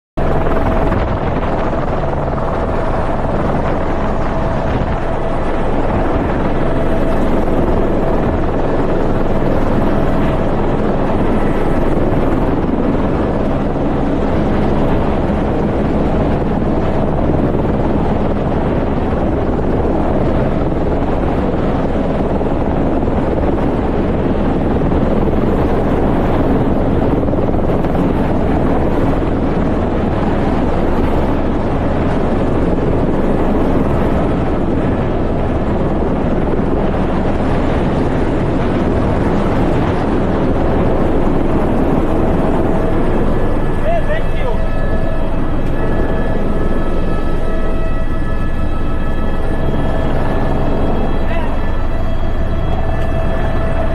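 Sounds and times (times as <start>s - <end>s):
helicopter rotor and engine: 0.2s - 53.9s.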